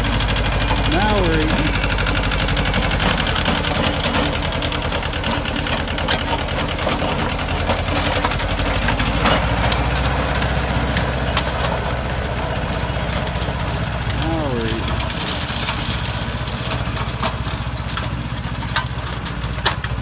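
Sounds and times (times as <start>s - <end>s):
tractor diesel engine running: 0.0s - 20.0s
rotary tiller digging soil: 2.1s - 14.2s.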